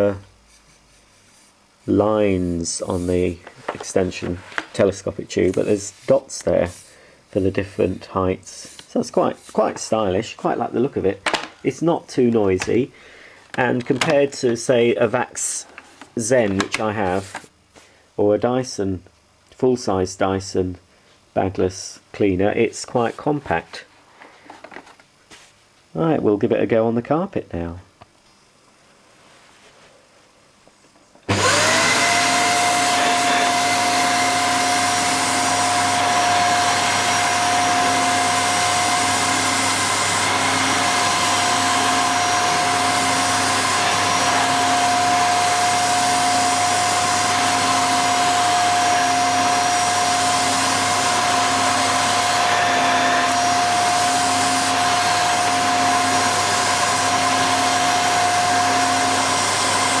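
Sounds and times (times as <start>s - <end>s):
vacuum cleaner running: 1.8s - 17.5s, 31.2s - 60.0s.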